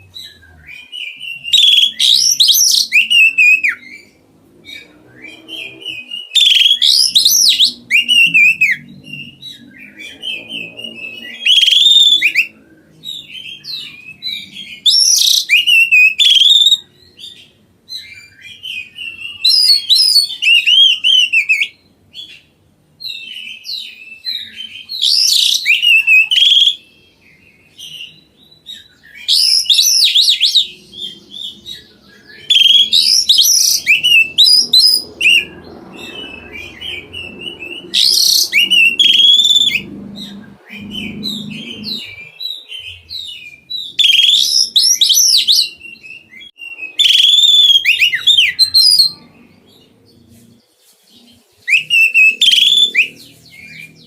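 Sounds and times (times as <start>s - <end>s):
bird singing whistles and chirps: 0.0s - 54.0s
soft bird twittering: 23.1s - 54.0s.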